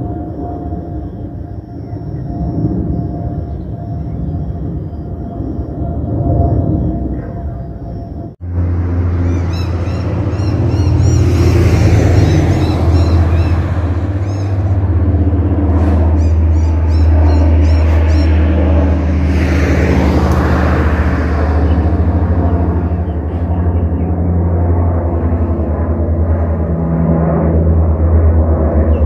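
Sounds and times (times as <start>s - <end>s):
jet airliner passing overhead: 0.0s - 29.0s
birds chirping: 9.1s - 18.8s, 21.6s - 25.2s, 28.8s - 29.0s.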